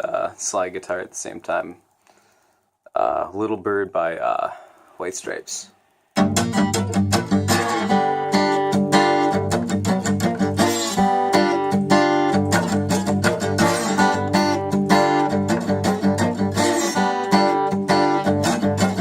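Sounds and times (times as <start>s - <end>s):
slide acoustic guitar riff: 5.0s - 19.0s.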